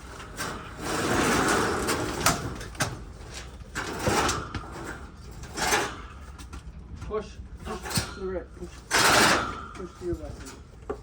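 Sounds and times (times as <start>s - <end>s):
heavy cabinet scraping: 0.0s - 2.6s.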